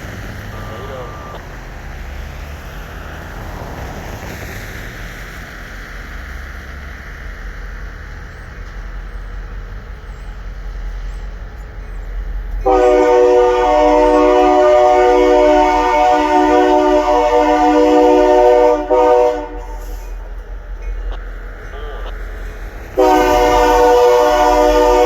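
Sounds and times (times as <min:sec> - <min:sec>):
train rumbling: 0:00.0 - 0:25.0
locomotive air horn chord: 0:12.6 - 0:20.4, 0:22.9 - 0:25.0.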